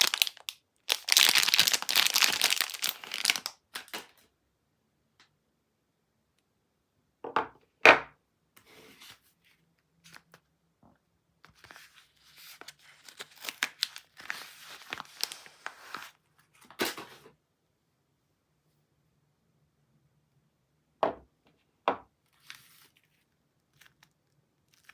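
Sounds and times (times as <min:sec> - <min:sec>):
packaging tearing and crinkling: 0:00.0 - 0:04.1, 0:13.0 - 0:16.2, 0:23.7 - 0:24.9.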